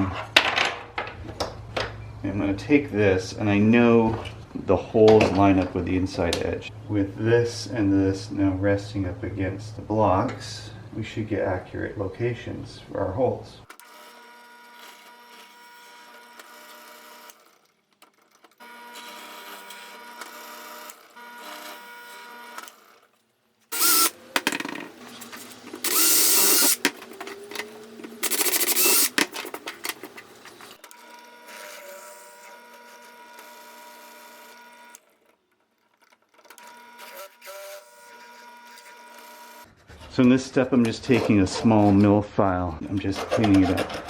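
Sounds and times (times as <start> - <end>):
power drill boring through wood: 13.8 - 17.4, 18.6 - 22.9, 23.7 - 24.3, 25.8 - 35.1, 36.5 - 39.7.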